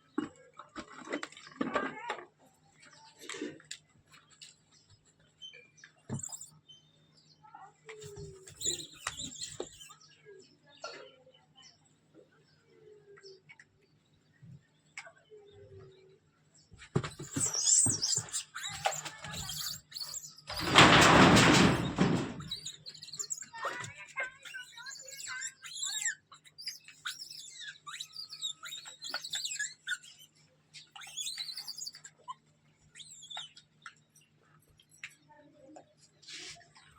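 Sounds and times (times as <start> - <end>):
animal chirps and squeaks: 5.4 - 6.8, 8.0 - 10.2, 17.0 - 35.2.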